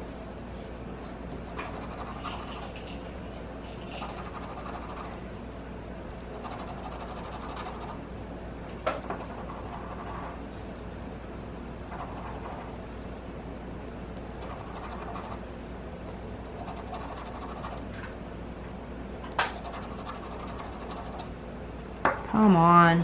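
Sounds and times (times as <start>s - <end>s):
lottery ticket being scratched: 6.3s - 8.0s, 9.2s - 10.4s, 19.5s - 21.3s.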